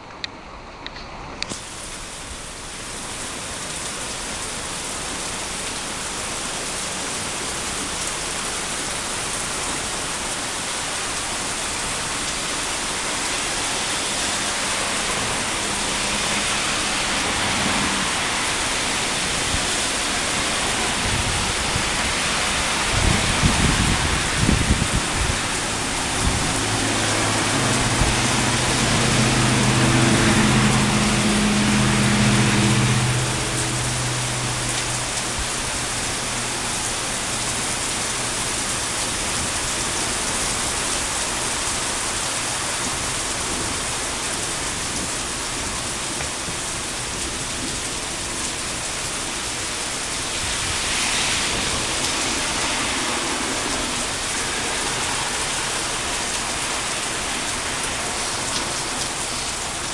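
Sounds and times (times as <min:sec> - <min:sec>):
heavy rain pouring: 0:01.4 - 0:59.9
low engine hum: 0:14.1 - 0:59.9.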